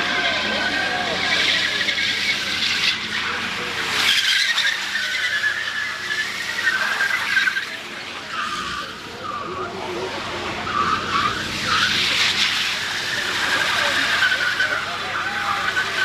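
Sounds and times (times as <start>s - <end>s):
car tyres squealing: 0.0s - 16.0s.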